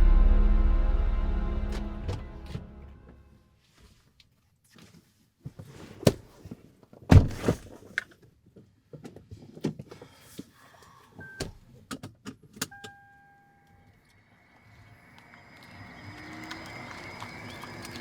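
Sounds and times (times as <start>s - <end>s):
heavy thump: 0.0s - 3.2s.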